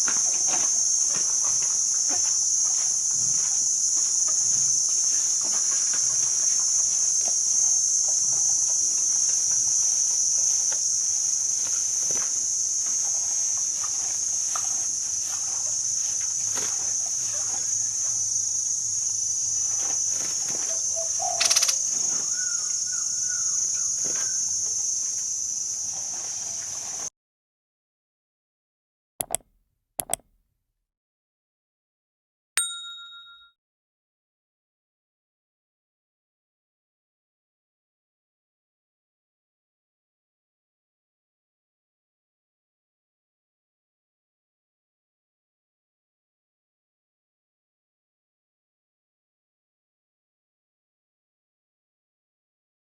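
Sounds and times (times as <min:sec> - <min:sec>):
faint outdoor sounds: 0:00.0 - 0:27.0
high-pitched insect drone: 0:00.0 - 0:27.1
short clicks: 0:29.2 - 0:30.3
ringing tone: 0:32.6 - 0:33.6.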